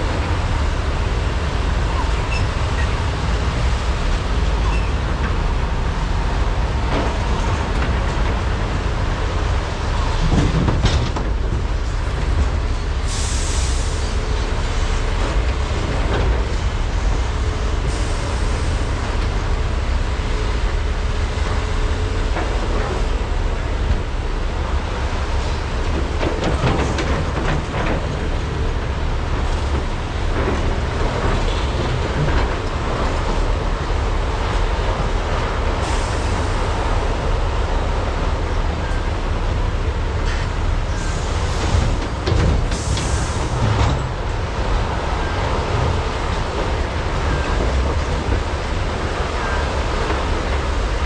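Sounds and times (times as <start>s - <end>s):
excavator diesel engines rumbling: 0.0s - 51.0s
knocks and clanks: 10.1s - 12.6s, 25.8s - 33.5s, 41.6s - 44.4s.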